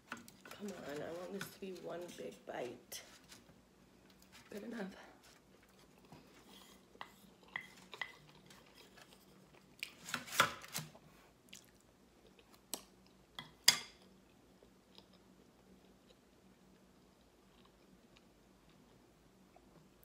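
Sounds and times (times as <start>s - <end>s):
wooden spoon scraping a plate: 0.4s - 3.5s
close chewing: 11.4s - 13.2s, 17.1s - 19.7s.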